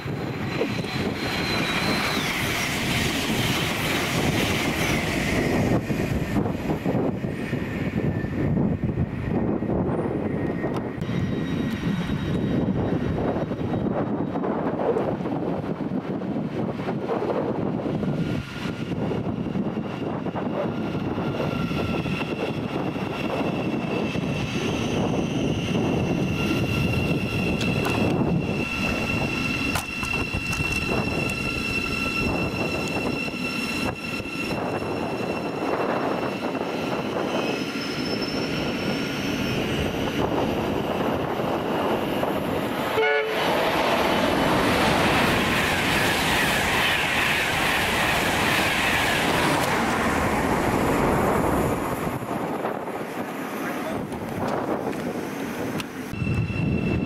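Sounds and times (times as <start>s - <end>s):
train wheel and rail noise: 0.0s - 57.0s
high whine: 56.1s - 57.0s.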